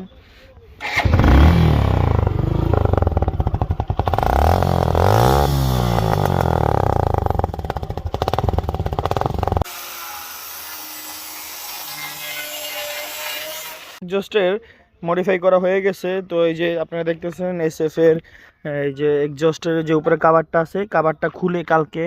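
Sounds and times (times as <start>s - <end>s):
loud motorcycle engine: 0.8s - 9.7s.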